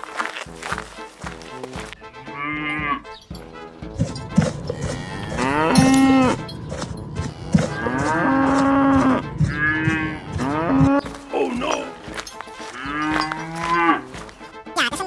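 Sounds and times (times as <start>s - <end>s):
cattle mooing: 4.0s - 14.2s.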